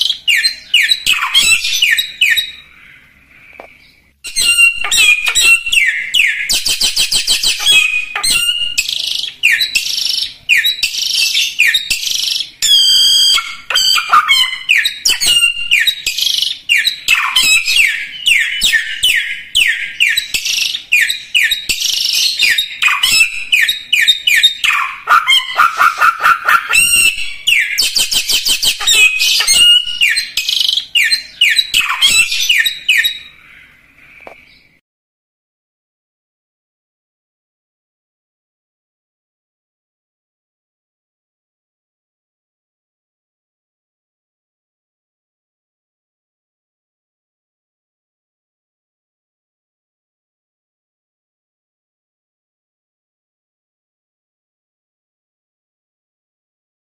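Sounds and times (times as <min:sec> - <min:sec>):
songbird singing: 0:00.0 - 0:34.8.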